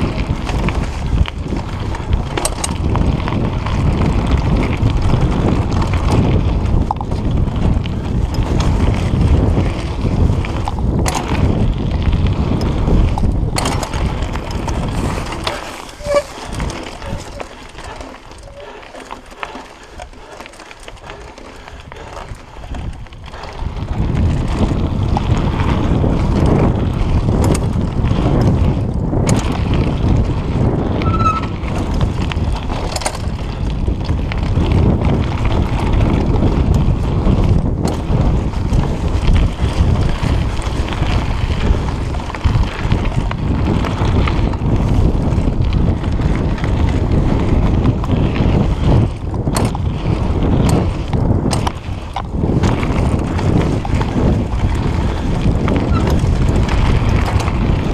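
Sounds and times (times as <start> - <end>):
mountain bike rumbling and rattling: 0.0 - 57.9
wind buffeting microphone: 0.0 - 57.9.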